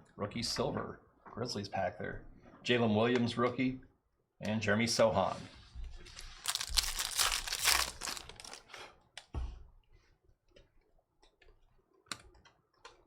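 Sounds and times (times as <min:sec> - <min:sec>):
plastic wrapper tearing and crinkling: 0:06.1 - 0:08.8.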